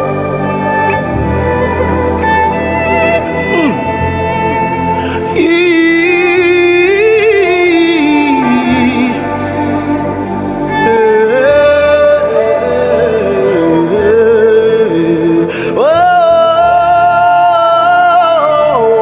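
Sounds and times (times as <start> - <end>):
instrumental background music: 0.0 - 19.0
person singing slow melody: 0.0 - 19.0.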